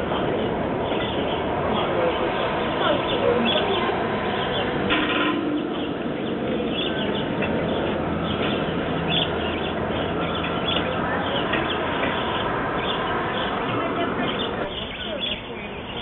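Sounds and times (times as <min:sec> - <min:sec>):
bird chirps: 0:02.8 - 0:16.0.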